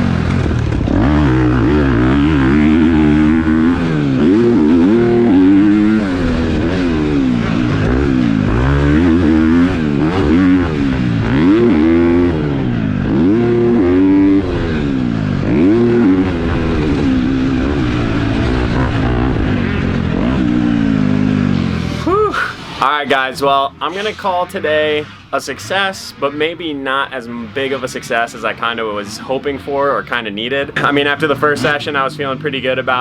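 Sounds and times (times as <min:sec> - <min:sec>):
motocross bike engine revving: 0:00.0 - 0:33.0.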